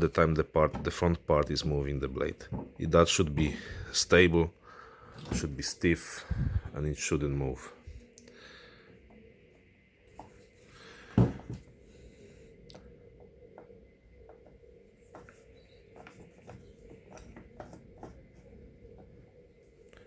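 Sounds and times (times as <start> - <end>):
handling noise of hand planer: 15.1 - 19.1.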